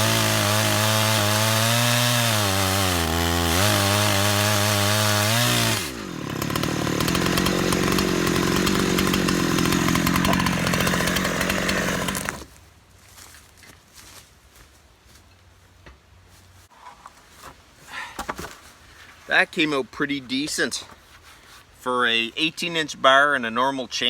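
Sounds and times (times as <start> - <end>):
chainsaw cutting log: 0.0 - 12.6.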